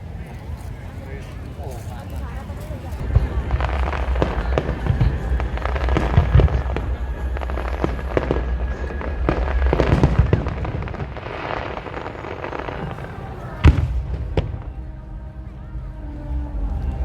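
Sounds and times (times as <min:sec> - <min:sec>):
fireworks bangs and crackles: 0:03.0 - 0:14.9.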